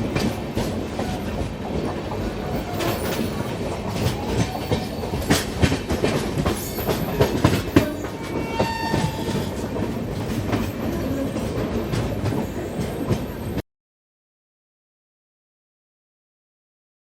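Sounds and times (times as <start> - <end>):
train wheels clicking over rail joints: 0.0 - 13.6.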